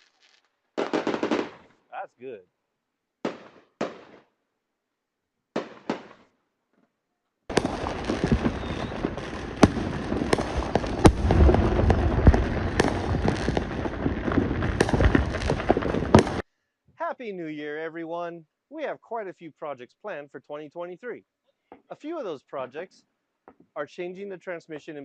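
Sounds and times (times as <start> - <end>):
fireworks bangs: 0.0 - 1.7, 3.2 - 4.3, 5.6 - 6.3, 7.5 - 16.4
fireworks crackling: 0.0 - 1.7, 7.5 - 16.4.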